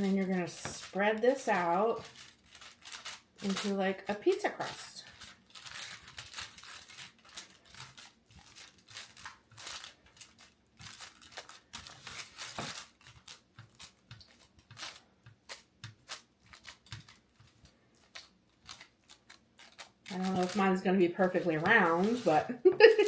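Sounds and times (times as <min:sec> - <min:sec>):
parchment paper crinkling: 0:00.0 - 0:23.0.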